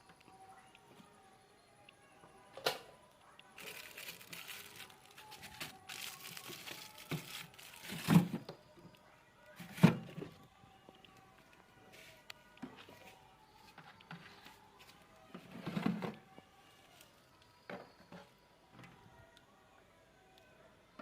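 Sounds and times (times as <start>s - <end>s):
ice scraping and crackling: 3.6s - 8.4s.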